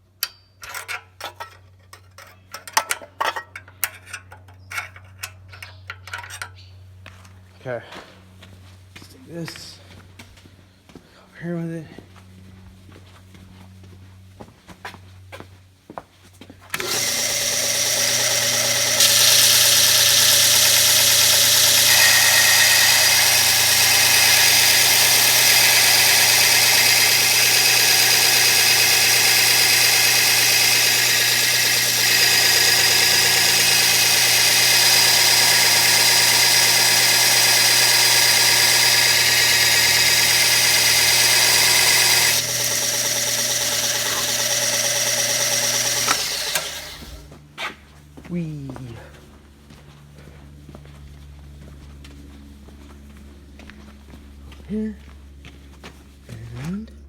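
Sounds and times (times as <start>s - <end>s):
belt sander whining: 16.7s - 47.3s.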